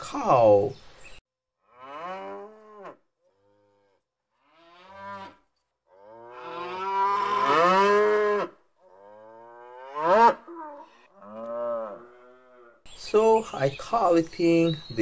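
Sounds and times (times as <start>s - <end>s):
cattle mooing: 1.6s - 12.8s.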